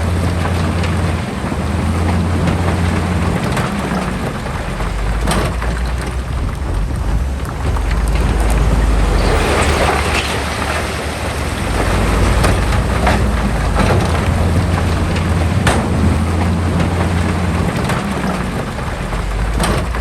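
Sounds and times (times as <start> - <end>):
diesel earthmoving machinery running: 0.0 - 20.0
fill spilling: 0.0 - 20.0.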